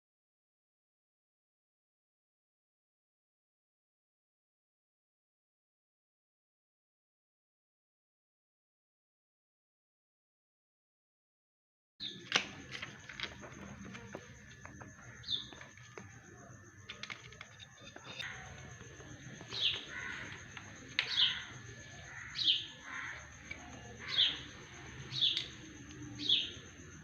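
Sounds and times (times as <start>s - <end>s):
bird chirping: 12.0s - 27.0s.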